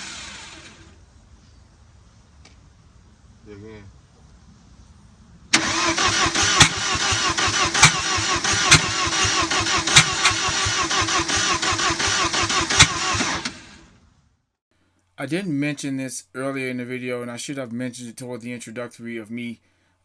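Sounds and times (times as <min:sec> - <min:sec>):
engine cranking by starter: 0:05.6 - 0:13.8.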